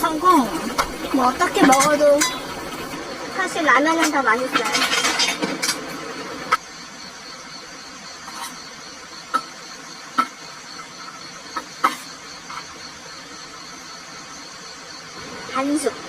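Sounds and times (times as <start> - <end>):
steady high hiss: 0.0 - 16.0
utensils clinking against bowl: 0.8 - 2.7, 3.8 - 6.6.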